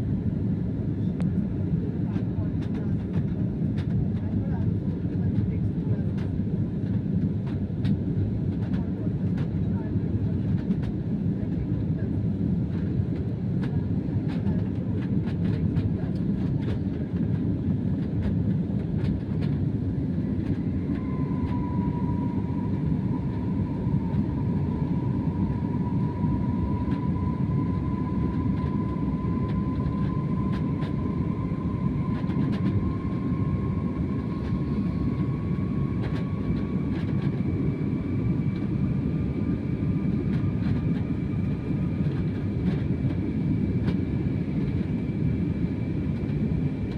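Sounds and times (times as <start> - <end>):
jet engines low rumble: 0.0 - 46.9
jet engine whine rising in pitch: 18.6 - 46.9.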